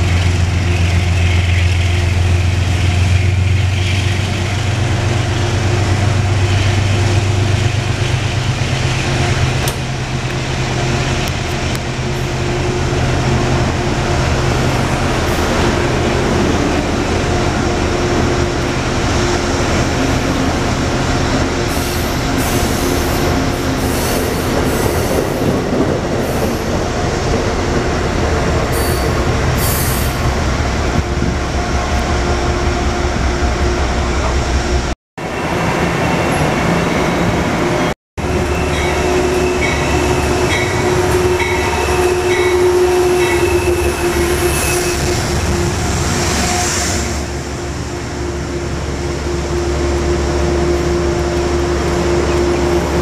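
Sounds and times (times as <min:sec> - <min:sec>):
train wheels rumbling on rails: 0:00.0 - 0:53.0
high wheel squeals: 0:38.4 - 0:47.4.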